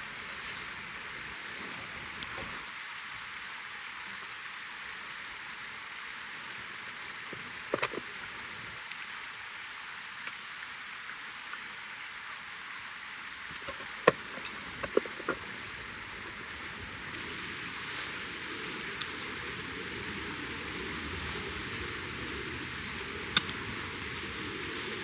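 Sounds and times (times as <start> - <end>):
fire crackling pops: 0.0 - 2.6, 17.1 - 25.0
wood fire hissing: 0.0 - 2.7, 15.6 - 25.0.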